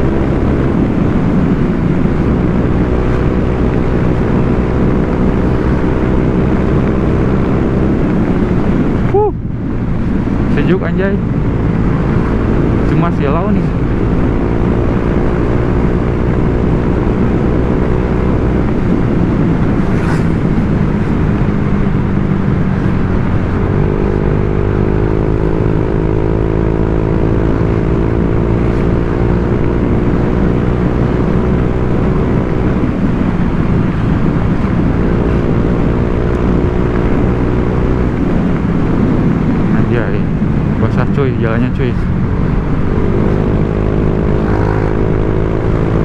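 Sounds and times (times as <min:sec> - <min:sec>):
scooter engine: 0:42.2 - 0:46.0.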